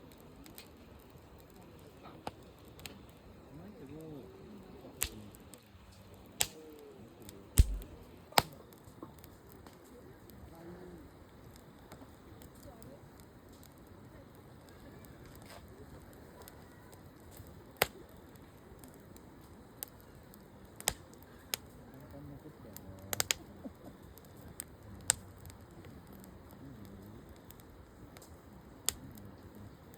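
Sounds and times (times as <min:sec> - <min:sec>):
campfire wood popping: 0:00.0 - 0:29.9
dull thump: 0:07.6 - 0:07.9.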